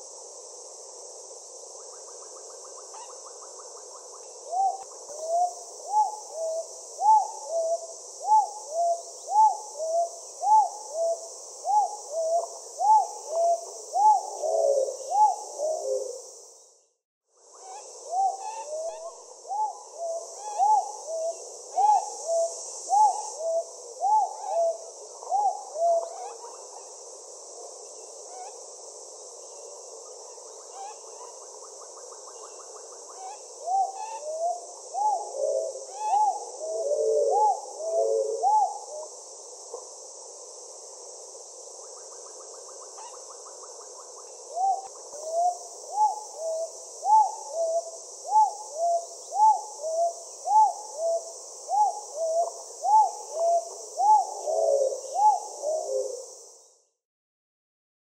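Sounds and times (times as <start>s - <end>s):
steady high hiss: 0.0s - 16.6s, 17.5s - 56.8s
birds hooting: 44.6s - 56.2s.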